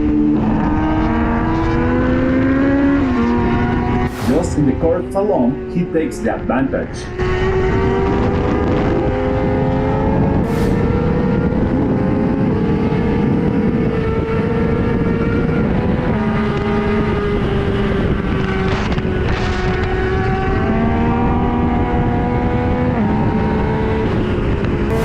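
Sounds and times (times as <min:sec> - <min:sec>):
rushing wind noise: 0:00.0 - 0:25.0
motorcycle engine changing gears: 0:07.1 - 0:25.0.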